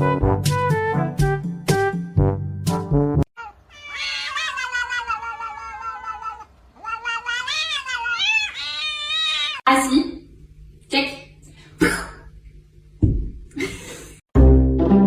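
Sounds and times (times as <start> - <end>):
music: 0.0 - 3.3, 14.4 - 15.0
cat meowing: 3.4 - 9.6.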